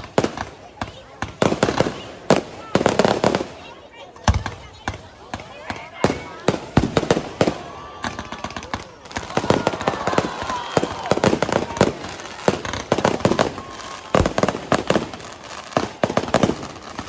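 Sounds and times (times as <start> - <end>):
fireworks bangs and crackles: 0.0 - 17.0
low fireworks boom: 0.0 - 17.0
fireworks whistles: 4.3 - 17.0.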